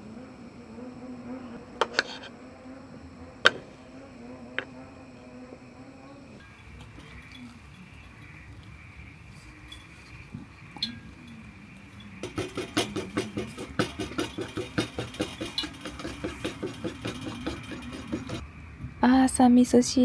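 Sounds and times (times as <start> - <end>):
utensil clinking against pot: 6.4 - 18.4.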